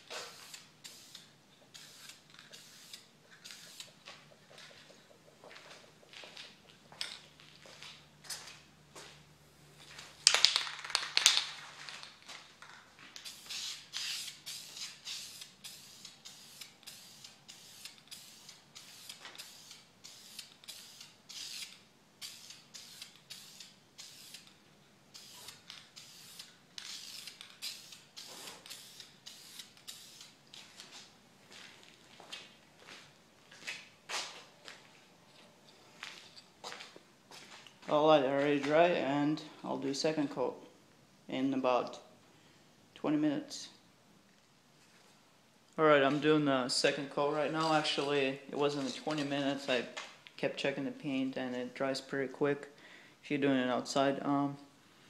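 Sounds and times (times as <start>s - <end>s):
spray-paint can hissing: 0.1s - 4.0s, 13.2s - 24.5s, 25.1s - 30.4s.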